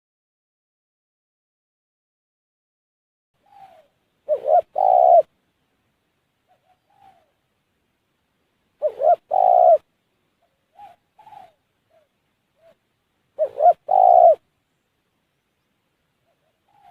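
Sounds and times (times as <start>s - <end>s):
dove cooing: 3.4s - 5.3s, 6.5s - 7.4s, 8.8s - 12.8s, 13.4s - 14.5s, 16.2s - 16.9s.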